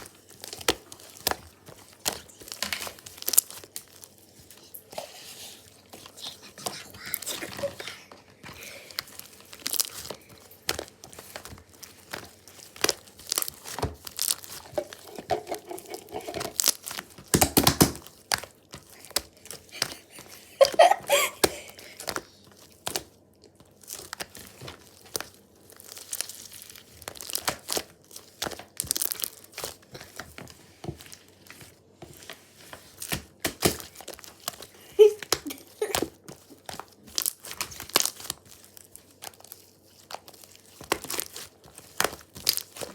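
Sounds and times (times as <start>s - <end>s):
thin sheet crinkling and tearing: 8.9s - 20.0s, 32.8s - 42.9s.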